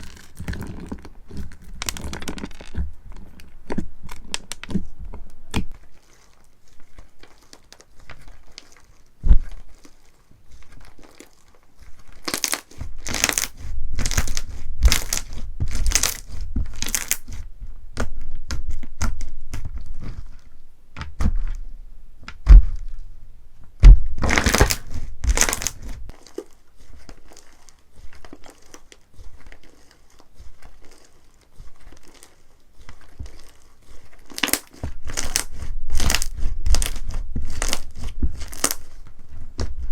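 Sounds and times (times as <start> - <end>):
slime crackling when squeezed: 9.6 - 17.4, 24.2 - 26.6, 34.2 - 39.0
dull thuds: 17.6 - 23.0, 23.6 - 26.1.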